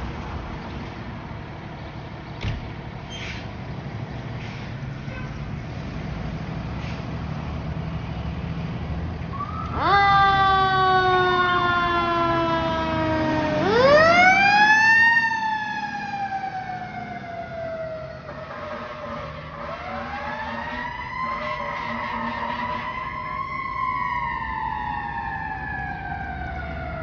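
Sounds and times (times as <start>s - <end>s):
low road rumble: 0.0s - 27.0s
fire truck siren: 6.4s - 27.0s.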